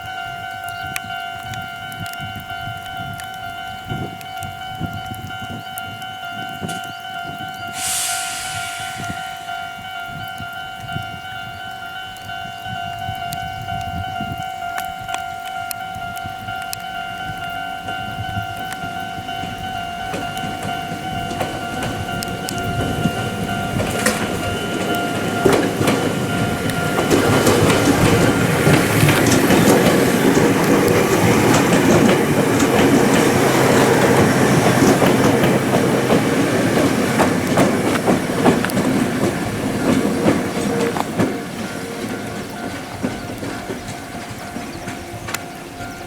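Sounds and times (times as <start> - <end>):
electric train passing: 0.0 - 46.0
train wheels clattering over joints: 17.8 - 46.0.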